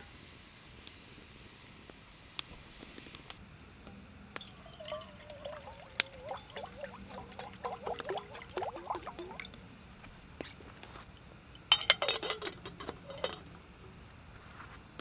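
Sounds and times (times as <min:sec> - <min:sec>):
water pouring and gurgling: 0:04.4 - 0:09.7, 0:11.6 - 0:13.5.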